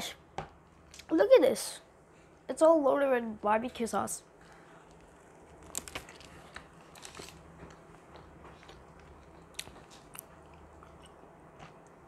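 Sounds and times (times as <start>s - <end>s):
person chewing: 4.8s - 12.0s.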